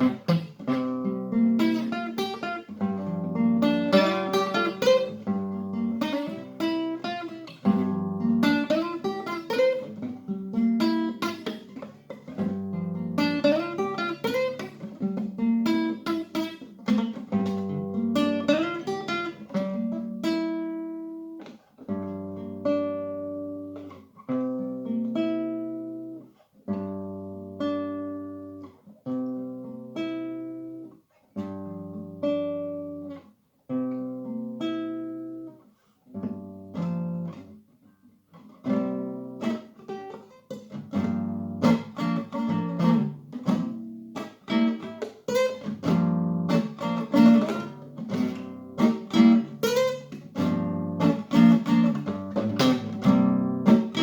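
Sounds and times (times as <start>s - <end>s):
acoustic guitar strumming chords: 0.0s - 26.2s, 38.4s - 54.0s.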